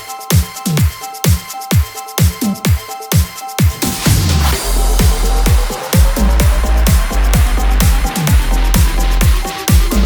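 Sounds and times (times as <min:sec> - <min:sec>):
electronic dance music: 0:00.0 - 0:10.0
steady kick drum: 0:00.0 - 0:10.0.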